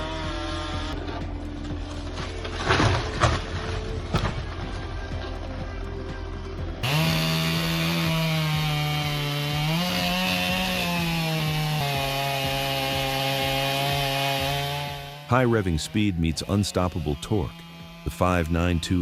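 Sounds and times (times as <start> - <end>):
chainsaw running under load: 6.8 - 19.0.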